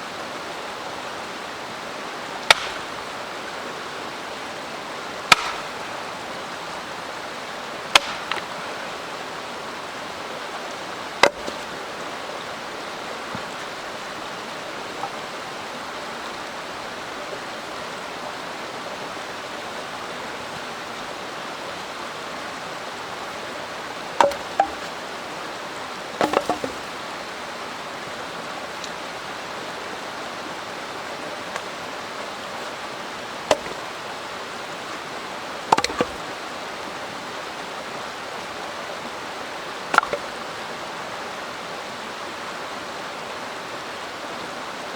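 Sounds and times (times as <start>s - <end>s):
mountain stream rushing: 0.0s - 44.9s
sharp clicks and knocks: 5.3s - 5.7s, 7.9s - 8.5s, 11.2s - 11.6s, 24.2s - 25.0s, 26.2s - 26.9s, 33.5s - 33.8s, 35.7s - 36.2s, 39.9s - 40.3s.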